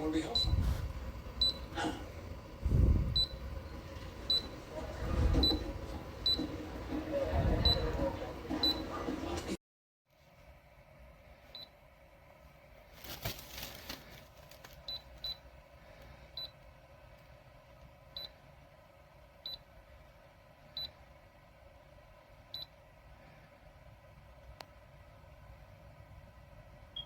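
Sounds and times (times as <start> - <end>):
low steady hum: 0.0 - 9.5.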